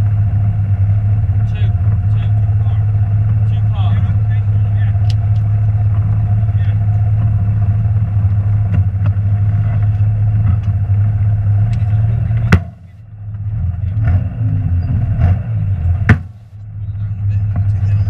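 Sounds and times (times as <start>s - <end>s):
car engine running hard: 0.0s - 18.0s
sharp bangs: 12.4s - 13.0s, 15.2s - 16.6s.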